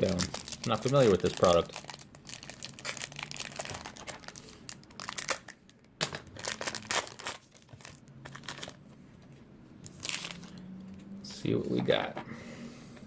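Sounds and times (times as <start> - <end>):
wrapper tearing and crinkling: 0.0 - 8.8, 9.8 - 10.6.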